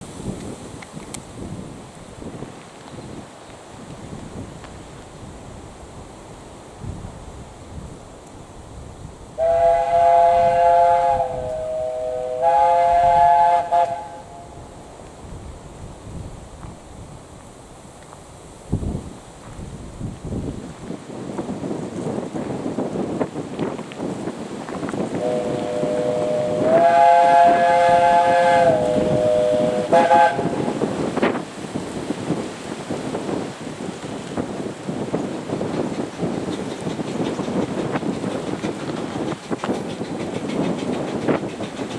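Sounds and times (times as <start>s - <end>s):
steam locomotive running noise: 3.9s - 41.9s
steam locomotive chime whistle: 9.4s - 14.6s, 25.2s - 30.8s.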